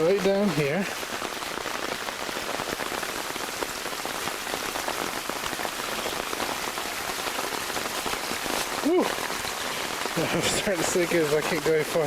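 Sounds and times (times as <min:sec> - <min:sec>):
floodwater rushing: 0:00.0 - 0:12.0
heavy rain on umbrella: 0:00.0 - 0:12.0.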